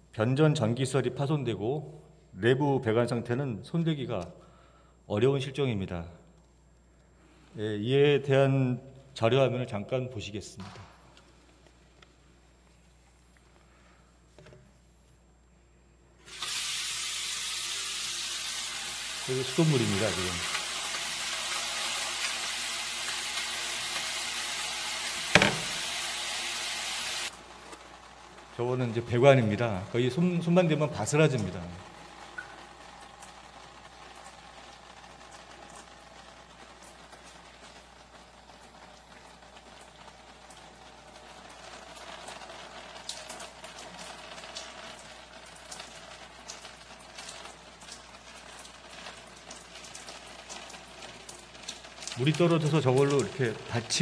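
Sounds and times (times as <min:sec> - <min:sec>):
tap water running: 0:16.2 - 0:54.0
loud thump: 0:25.3 - 0:25.8.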